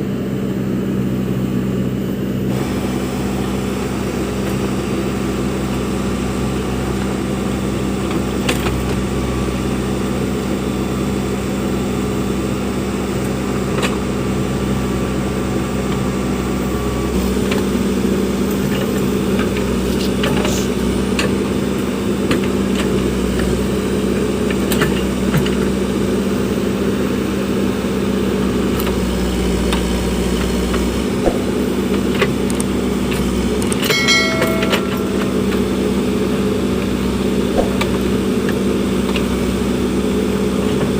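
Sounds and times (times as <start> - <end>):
diesel engine running: 0.0 - 40.9
clanks and knocks: 33.9 - 36.0.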